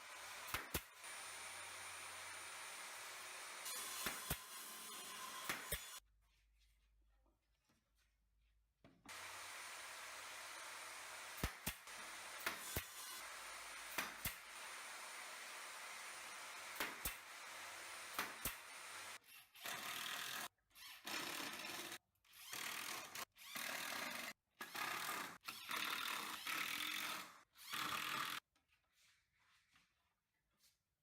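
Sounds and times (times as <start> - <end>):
power tool cutting wood: 0.0 - 6.0, 9.1 - 28.4.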